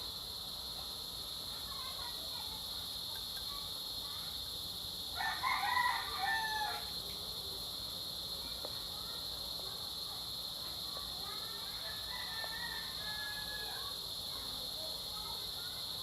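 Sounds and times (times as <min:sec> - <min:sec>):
rooster crowing: 0:05.2 - 0:07.0, 0:11.8 - 0:13.9.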